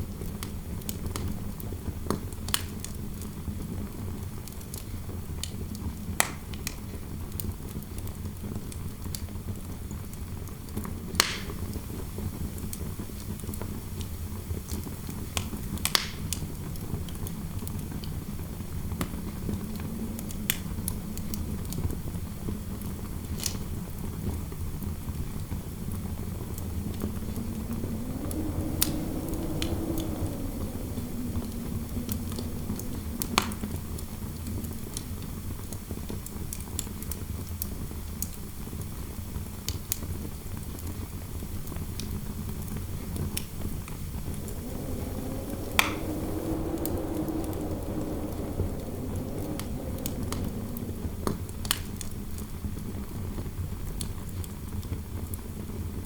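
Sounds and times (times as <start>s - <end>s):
fireplace fire crackling: 11.1s - 24.0s, 24.6s - 37.6s, 42.7s - 52.8s
wind howling: 16.2s - 36.6s, 42.6s - 53.2s.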